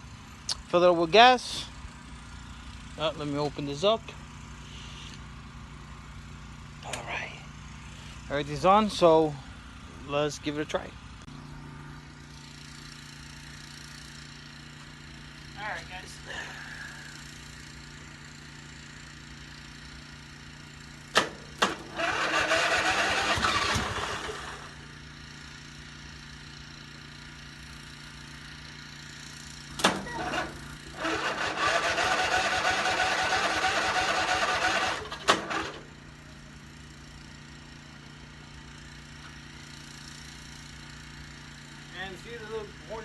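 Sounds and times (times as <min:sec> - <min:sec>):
engine cranking by starter: 0:20.8 - 0:25.0, 0:29.5 - 0:36.2.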